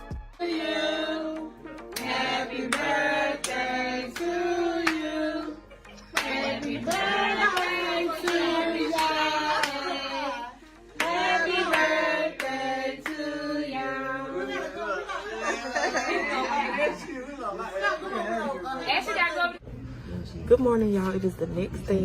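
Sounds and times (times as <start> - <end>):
song with sung vocal: 0.2 - 15.2
clap-like beat: 1.9 - 5.1, 6.2 - 10.0, 11.0 - 13.2.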